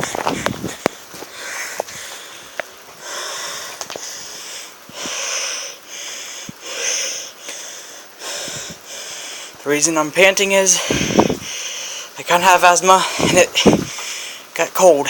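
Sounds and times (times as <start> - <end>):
man panting hard: 0.0 - 9.6, 10.5 - 12.2, 12.9 - 14.5
man talking: 9.6 - 11.0, 12.2 - 13.8, 14.6 - 15.0.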